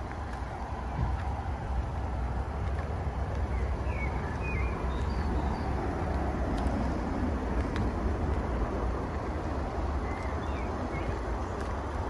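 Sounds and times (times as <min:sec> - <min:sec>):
bird chirps: 0:03.5 - 0:05.8, 0:10.0 - 0:11.2.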